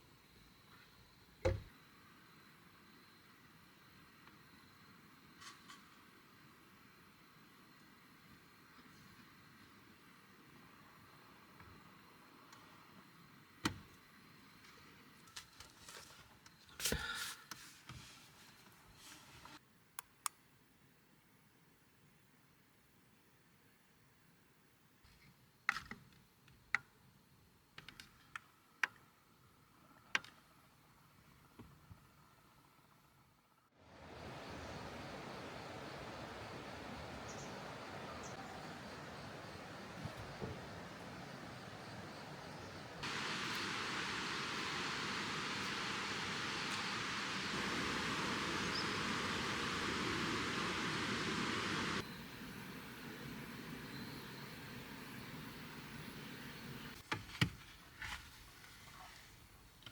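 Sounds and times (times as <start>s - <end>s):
hiss of rushing water: 33.8s - 57.0s.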